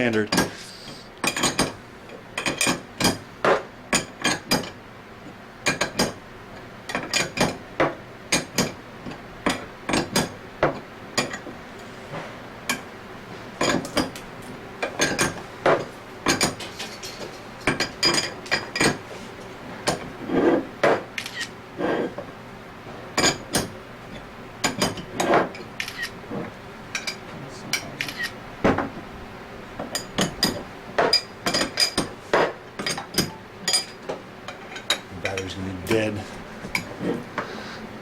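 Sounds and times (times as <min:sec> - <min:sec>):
hand tools clinking on metal: 0:32.8 - 0:36.0.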